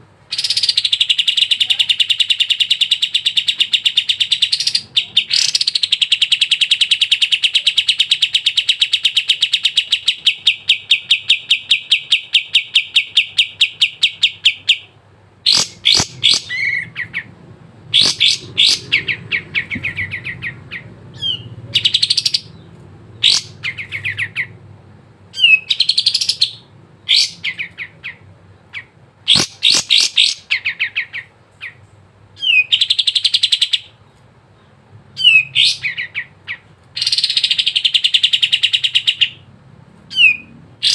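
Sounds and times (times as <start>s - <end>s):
bird chattering notes: 0.3s - 24.6s.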